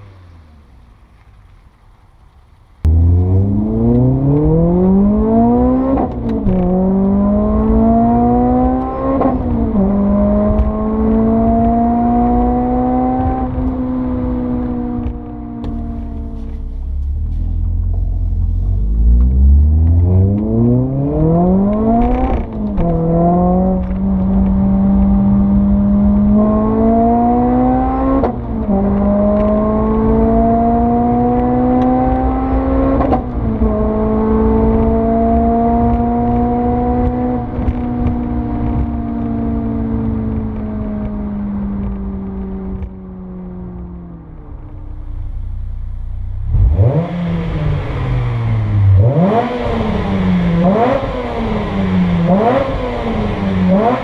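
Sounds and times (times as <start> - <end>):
car engine accelerating: 0.0 - 54.0
exhaust pop: 15.0 - 24.6.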